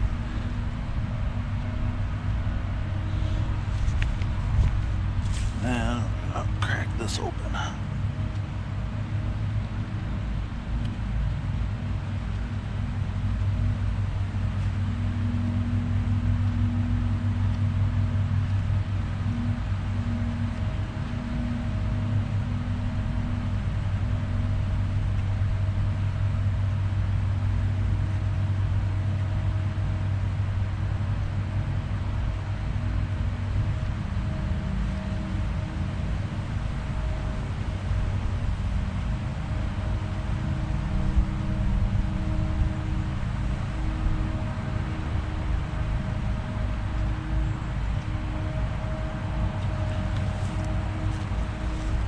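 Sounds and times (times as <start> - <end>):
air compressor humming: 49.6 - 52.0.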